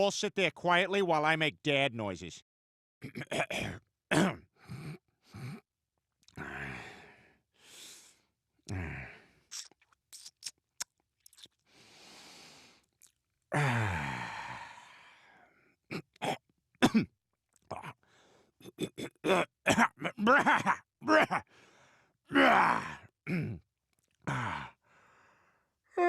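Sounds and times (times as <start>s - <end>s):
man grunting and groaning: 6.4s - 6.9s, 8.7s - 9.2s, 13.5s - 14.9s, 18.7s - 21.4s, 22.3s - 23.6s, 24.2s - 24.8s
mouth clicks: 9.5s - 11.6s
breathy exhale: 11.7s - 12.8s.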